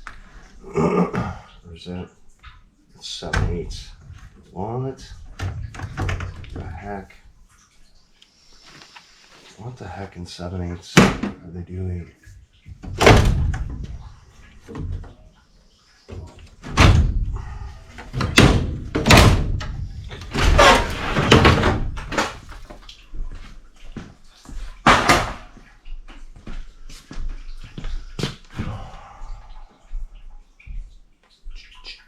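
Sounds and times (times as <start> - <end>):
metal banging and scraping: 18.1 - 22.7.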